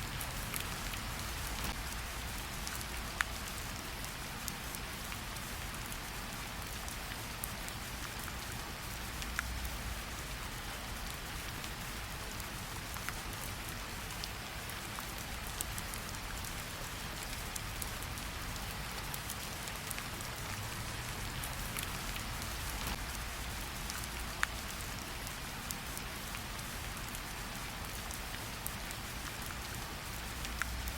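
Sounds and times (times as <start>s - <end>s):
raindrop ticks: 0.0s - 6.0s, 9.1s - 9.8s, 12.5s - 30.9s
rain hissing: 15.0s - 30.9s.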